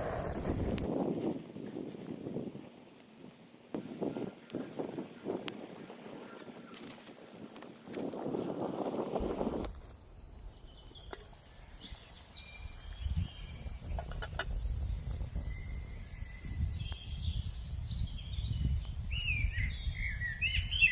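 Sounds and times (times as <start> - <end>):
low uneven rumble: 0.0 - 1.2
songbirds chirping and trilling: 9.4 - 20.9.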